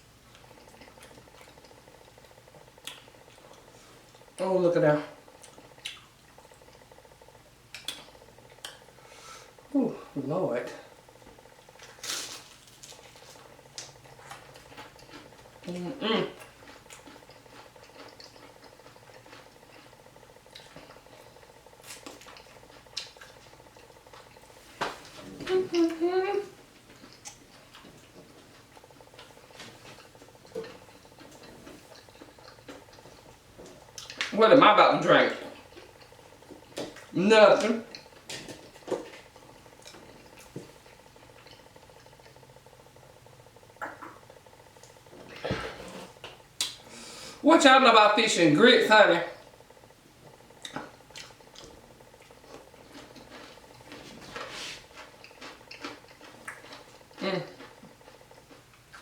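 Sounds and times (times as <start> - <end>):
chewing food: 0.2 - 4.5, 5.1 - 9.7, 11.0 - 46.9, 49.3 - 59.0
person humming low: 25.3 - 26.5.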